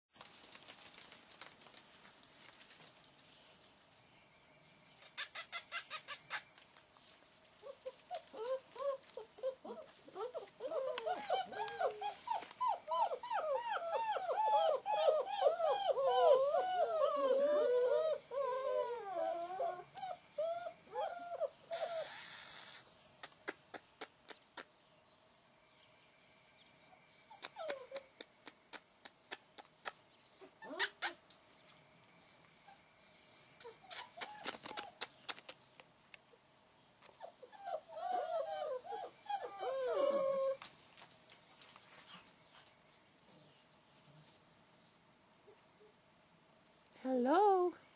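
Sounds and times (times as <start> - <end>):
puppies whining: 7.6 - 22.8, 26.6 - 28.2, 28.9 - 31.2, 31.8 - 35.3, 36.3 - 40.7
brief hiss: 21.8 - 23.6.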